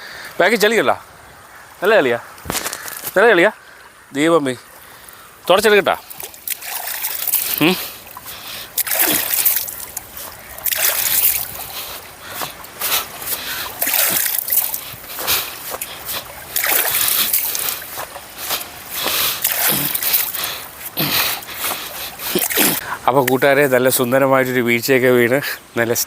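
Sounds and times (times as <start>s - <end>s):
water splashing by hand: 4.7s - 23.4s.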